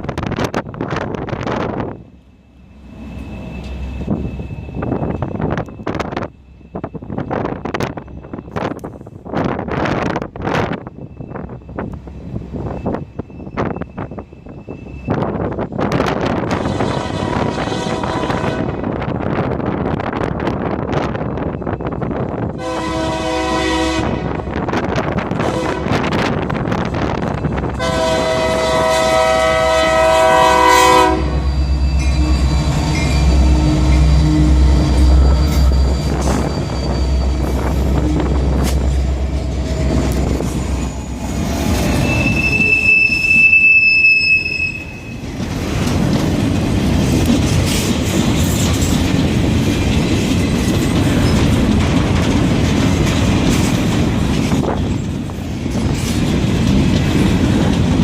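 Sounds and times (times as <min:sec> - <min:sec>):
high wheel squeal: 0:02.6 - 0:08.7, 0:10.9 - 0:15.4, 0:30.8 - 0:45.4
locomotive air horn: 0:16.5 - 0:18.9, 0:22.6 - 0:24.5, 0:25.4 - 0:26.1, 0:27.8 - 0:32.6
train cars clattering over rails: 0:24.5 - 0:43.6, 0:44.8 - 0:58.0.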